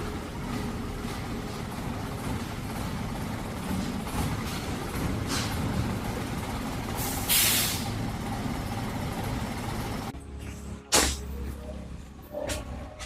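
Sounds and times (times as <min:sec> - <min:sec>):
truck engine running: 0:00.0 - 0:13.0
loud air hiss: 0:07.0 - 0:08.0.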